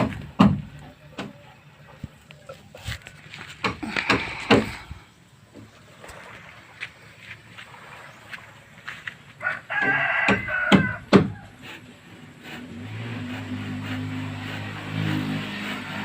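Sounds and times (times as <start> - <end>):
sharp knocks: 0.0 - 1.3, 3.6 - 4.9, 9.8 - 11.4
rooster crowing: 9.4 - 11.5.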